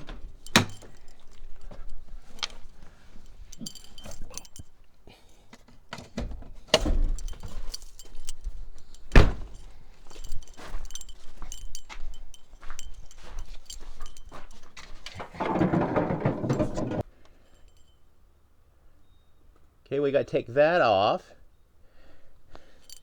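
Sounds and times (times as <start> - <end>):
metal clinks of pickup hood: 0.0 - 4.8, 5.7 - 18.0
heavy knocks: 15.2 - 17.0.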